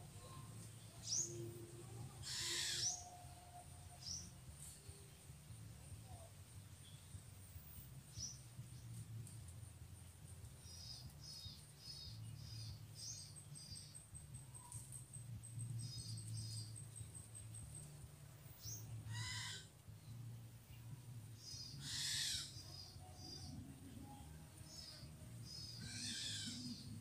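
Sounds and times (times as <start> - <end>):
low hum: 0.0 - 2.3, 3.0 - 27.0
bird chirping: 0.2 - 5.0, 10.5 - 27.0.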